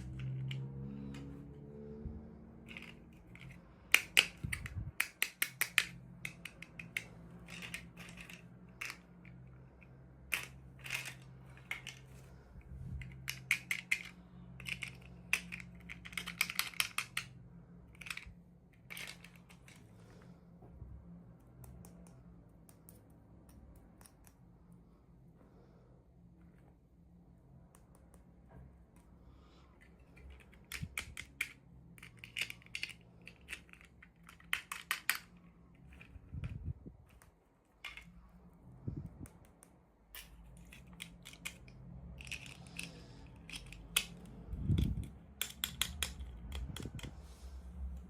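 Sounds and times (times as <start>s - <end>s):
toy packaging clicks and taps: 2.7s - 9.4s, 10.2s - 12.1s, 13.0s - 19.8s, 30.2s - 38.1s, 39.2s - 47.2s.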